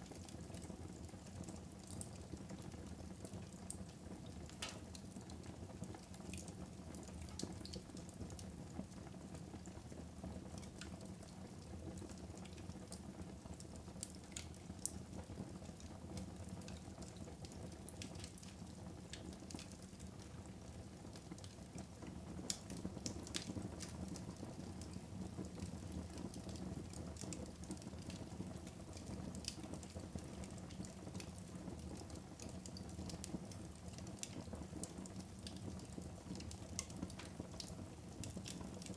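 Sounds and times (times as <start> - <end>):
fire crackling in fireplace: 0.0 - 38.9.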